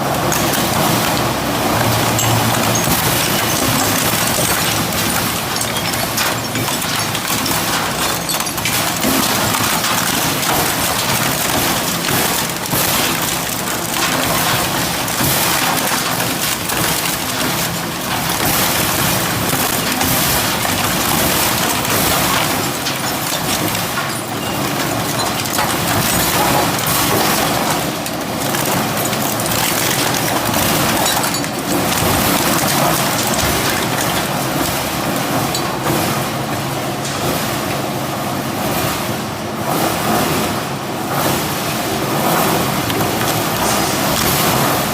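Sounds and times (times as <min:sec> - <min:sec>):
metal shredder crunching scrap: 0:00.0 - 0:37.2, 0:41.4 - 0:44.9
knocks and cracks: 0:00.2 - 0:36.0.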